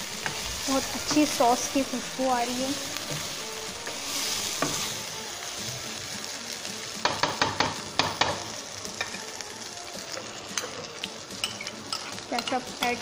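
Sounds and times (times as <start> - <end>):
food sizzling in frying pan: 0.0 - 13.0
spatula knocking and scraping pan: 3.0 - 4.9, 7.0 - 9.2.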